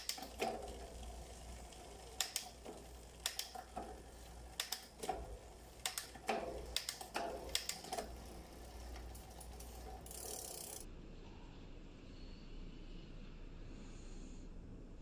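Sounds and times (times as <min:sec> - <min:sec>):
bike drivetrain running: 0:00.0 - 0:10.9
bike gears clicking: 0:00.0 - 0:10.9.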